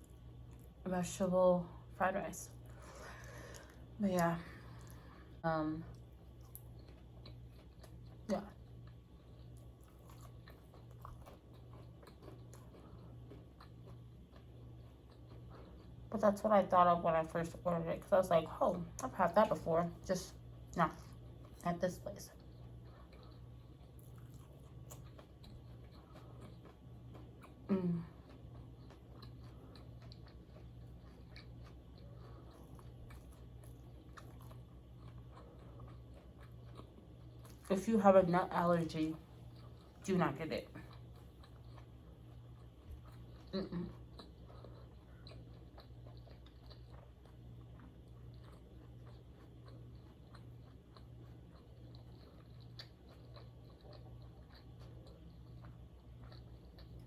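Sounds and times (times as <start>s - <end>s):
person chewing food: 0.0s - 0.8s, 2.5s - 16.1s, 22.3s - 37.7s, 39.2s - 40.1s, 40.7s - 57.0s
low electrical hum: 0.0s - 57.0s
person humming mm: 27.7s - 28.2s, 43.6s - 43.9s.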